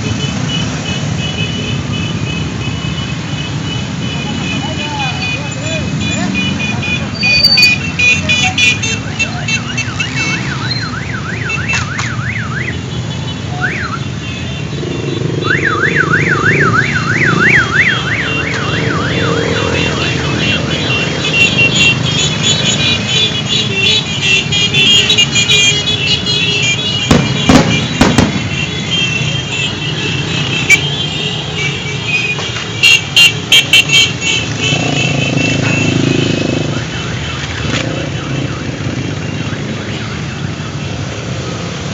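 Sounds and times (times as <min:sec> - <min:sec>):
motorcycles passing by: 0:00.0 - 0:12.1, 0:12.7 - 0:41.9
electronic siren warbling: 0:15.2 - 0:21.3.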